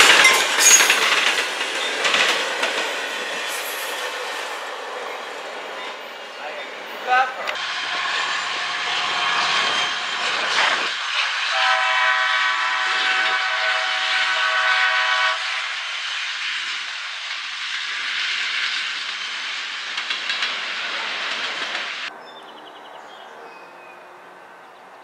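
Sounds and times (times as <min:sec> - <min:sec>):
diesel locomotives passing: 0:00.0 - 0:25.0
locomotive air horn chord: 0:11.5 - 0:15.6.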